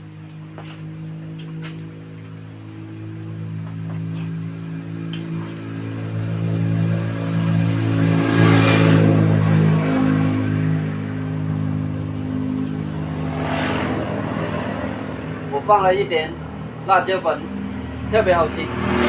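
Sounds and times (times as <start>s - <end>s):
vehicle engine passing: 0.0s - 19.0s.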